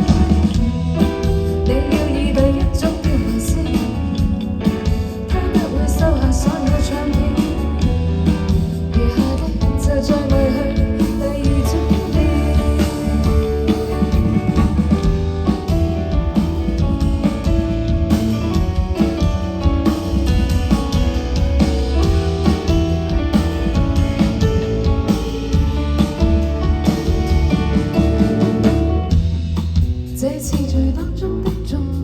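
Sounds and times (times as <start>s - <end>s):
strummed guitars: 0.0s - 30.3s
bass guitar: 0.0s - 32.0s
drum kit: 0.0s - 32.0s
person singing: 1.6s - 4.5s, 5.2s - 8.0s, 8.9s - 14.1s.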